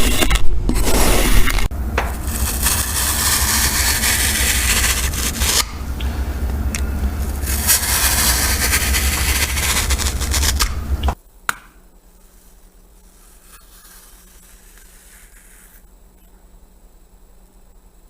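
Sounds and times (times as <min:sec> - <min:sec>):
faint steady hum: 0:00.0 - 0:18.0
loud dense scraping: 0:00.7 - 0:11.1.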